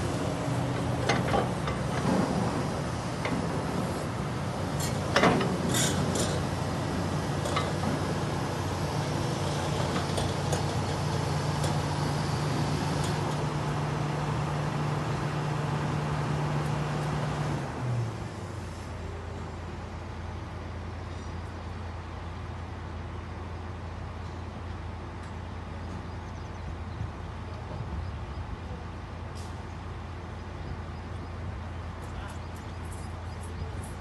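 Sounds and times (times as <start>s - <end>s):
excavator diesel engine running: 0.0s - 26.5s.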